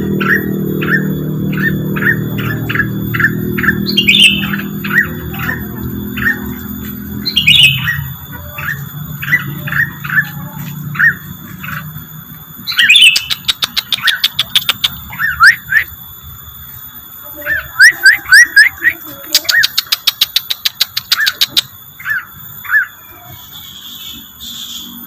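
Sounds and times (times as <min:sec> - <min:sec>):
bird chirps sweeping upward: 0:00.0 - 0:25.0
rapid sharp clicks: 0:13.0 - 0:15.1, 0:19.4 - 0:21.8.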